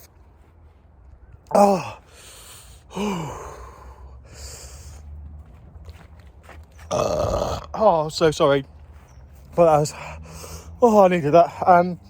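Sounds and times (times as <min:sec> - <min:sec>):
man groaning: 0:01.5 - 0:02.0, 0:06.9 - 0:07.8
heavy breathing: 0:01.6 - 0:05.2, 0:09.9 - 0:10.8.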